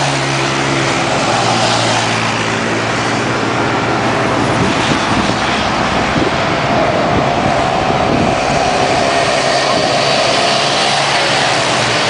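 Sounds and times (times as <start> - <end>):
rushing noise of engines: 0.0 - 12.0.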